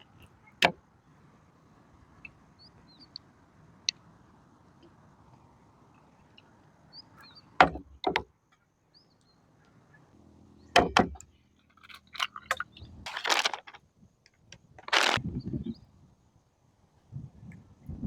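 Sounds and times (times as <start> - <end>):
scraping or rustling: 11.8 - 13.8, 14.8 - 15.2.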